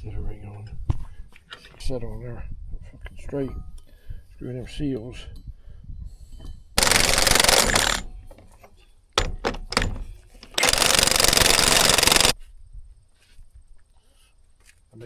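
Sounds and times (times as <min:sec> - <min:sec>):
impact wrench hammering: 0:06.8 - 0:08.1, 0:09.2 - 0:12.4
sharp metal clicks: 0:06.8 - 0:08.4, 0:09.2 - 0:12.4.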